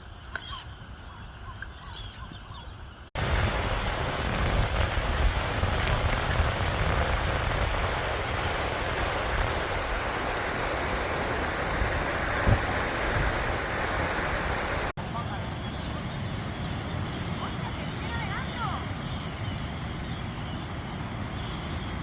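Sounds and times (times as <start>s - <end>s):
steady rushing noise: 3.2s - 19.0s.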